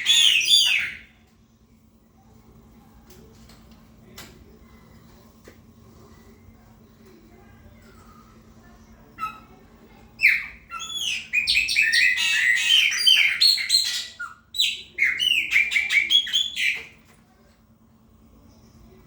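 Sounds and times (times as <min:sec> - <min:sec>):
blackbird singing: 0:00.0 - 0:01.1, 0:10.2 - 0:17.0.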